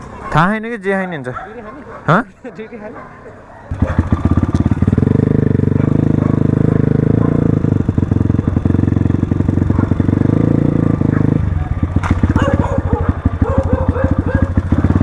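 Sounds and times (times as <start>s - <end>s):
dirt bike engine running: 3.7s - 15.0s.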